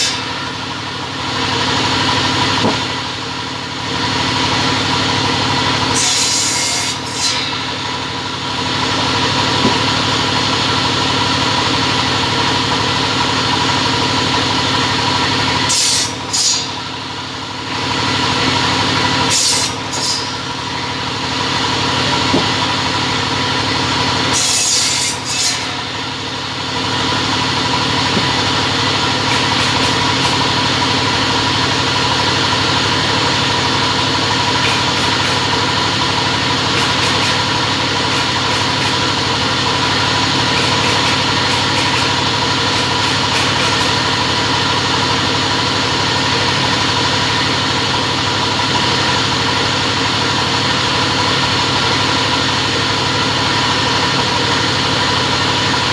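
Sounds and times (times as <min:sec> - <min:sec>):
cutting machine motor hum: 0:00.0 - 0:55.9
harsh high-pitched cutting bursts: 0:05.0 - 0:10.2, 0:19.2 - 0:21.2, 0:24.1 - 0:44.8.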